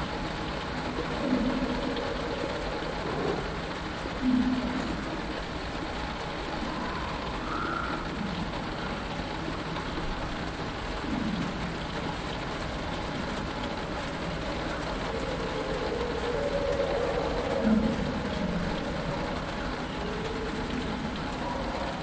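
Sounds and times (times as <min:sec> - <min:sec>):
rain on a canopy: 0:00.0 - 0:22.0
faint swamp creature calls: 0:00.8 - 0:09.1, 0:14.4 - 0:22.0.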